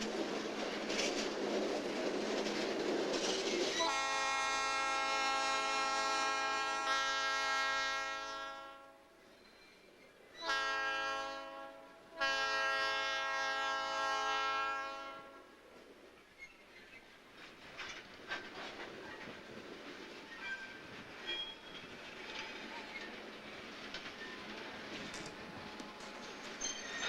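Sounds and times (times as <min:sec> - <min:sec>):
locomotive air horn blasts: 0:03.8 - 0:09.1, 0:10.4 - 0:15.5.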